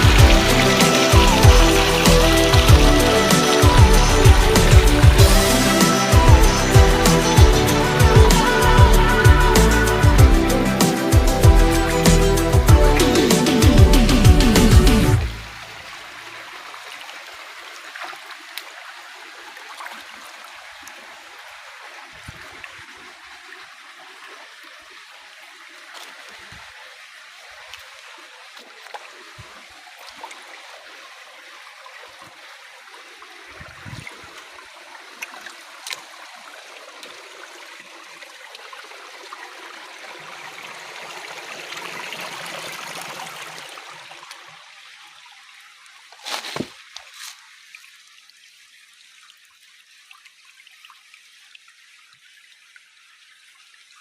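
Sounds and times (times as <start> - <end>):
stream water rushing: 0.0 - 51.7
small water clicks and splashes: 15.6 - 40.3, 42.9 - 54.0.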